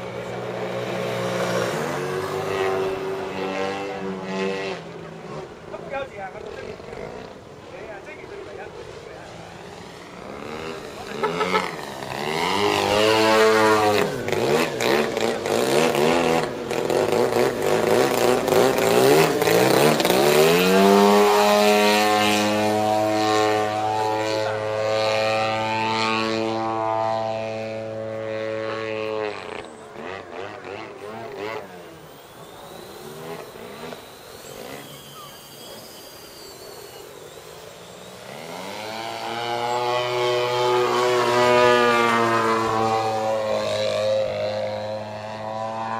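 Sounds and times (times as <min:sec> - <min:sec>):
model plane engine and propeller: 0:00.0 - 0:45.9.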